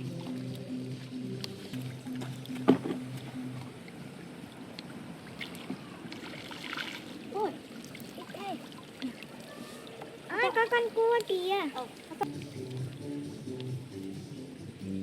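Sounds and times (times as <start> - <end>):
background music: 0.0 - 4.4, 12.2 - 15.0
water splashing and trickling: 0.0 - 14.4.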